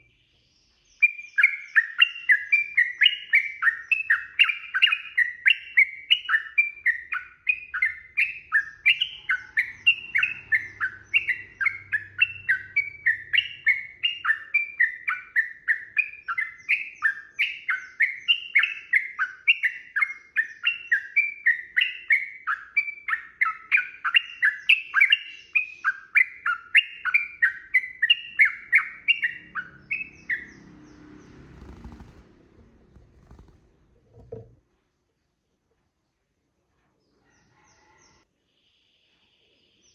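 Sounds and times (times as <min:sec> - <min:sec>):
bulbul singing warbled phrases: 0:00.9 - 0:32.1.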